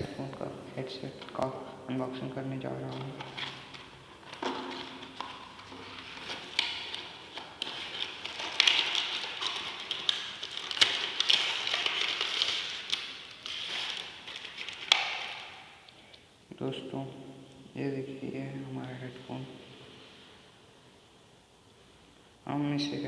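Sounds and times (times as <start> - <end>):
packaging crinkling and rustling: 2.2 - 15.8.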